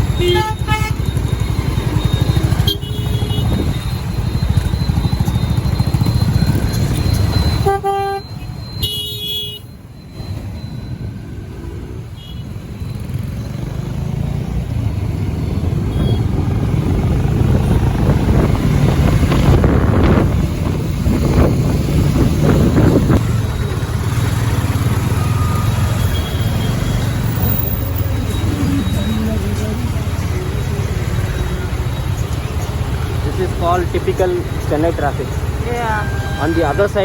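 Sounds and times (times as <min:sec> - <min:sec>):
traffic horns tooting: 0:00.0 - 0:04.6, 0:05.6 - 0:10.4, 0:12.1 - 0:13.1, 0:15.5 - 0:16.8, 0:31.0 - 0:37.0
motorcycle engine running: 0:00.0 - 0:07.8
road and wind noise: 0:00.0 - 0:37.0.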